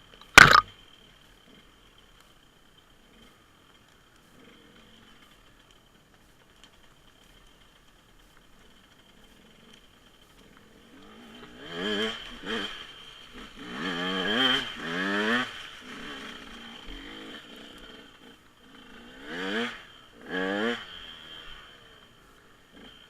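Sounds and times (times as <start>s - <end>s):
dirt bike engine revving: 10.8s - 21.9s.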